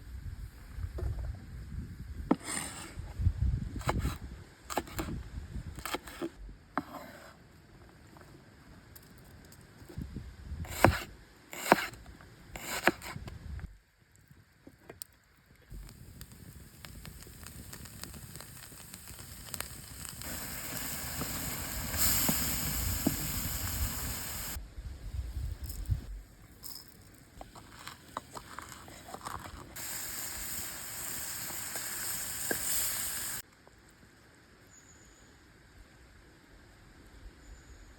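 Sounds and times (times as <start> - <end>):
meat sizzling in a pan: 15.8 - 24.6, 29.8 - 33.4.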